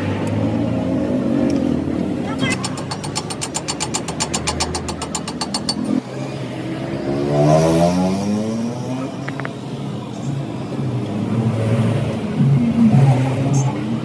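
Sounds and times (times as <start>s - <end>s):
rapid even clicking: 2.3s - 6.0s
engine revving up: 6.8s - 9.0s.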